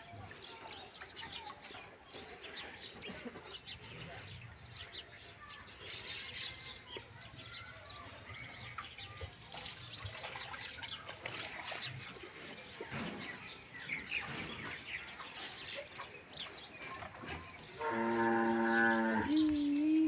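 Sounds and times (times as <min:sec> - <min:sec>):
small birds chirping: 0:00.0 - 0:20.0
water dripping and splashing: 0:08.6 - 0:13.4.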